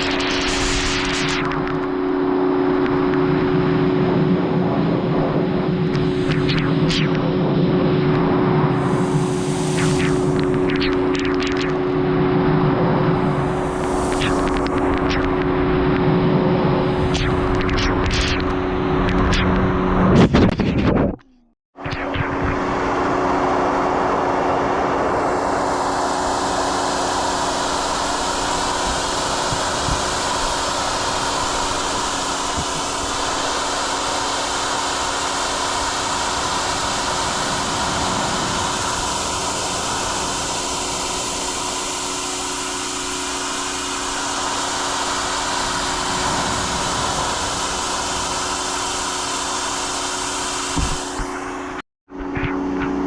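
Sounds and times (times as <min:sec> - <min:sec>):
pressure washer motor hum: 0:22.8 - 0:51.8
water jet hissing: 0:25.6 - 0:51.8.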